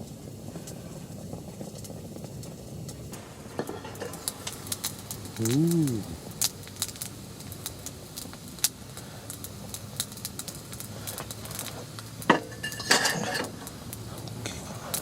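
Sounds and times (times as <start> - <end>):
light clicks of metal cookware: 10.8 - 15.0.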